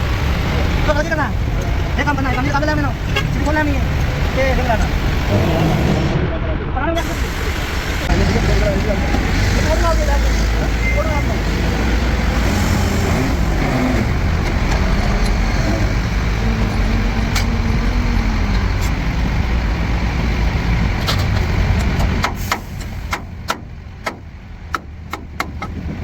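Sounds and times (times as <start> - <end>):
diesel engine running: 0.0 - 6.2, 7.0 - 26.0
sharp knocks: 21.1 - 25.8.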